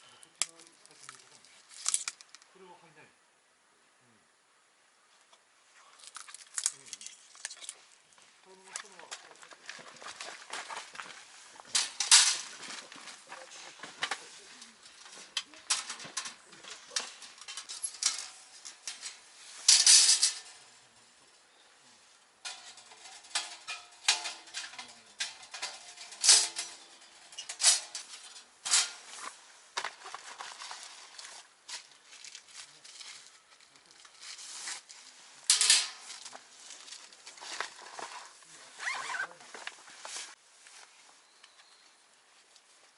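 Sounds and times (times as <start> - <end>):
rustling: 5.2 - 42.9.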